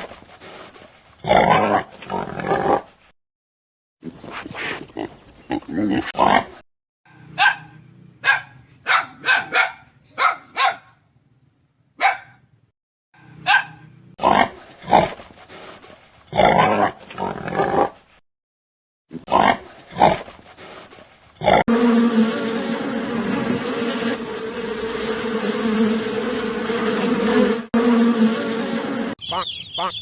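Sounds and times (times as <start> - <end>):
dog barking: 7.1 - 11.0, 12.0 - 12.4, 13.3 - 13.8.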